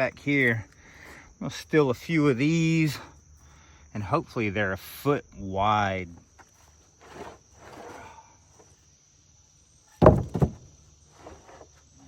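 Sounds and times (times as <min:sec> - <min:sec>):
high insect drone: 0:00.0 - 0:12.0
faint scraping and rustling: 0:06.3 - 0:08.9, 0:10.8 - 0:12.0
wooden boards knocking together: 0:10.0 - 0:11.6.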